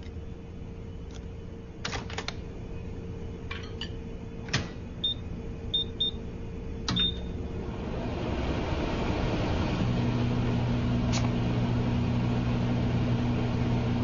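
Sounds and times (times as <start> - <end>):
microwave door clicks and knocks: 3.5 - 4.8.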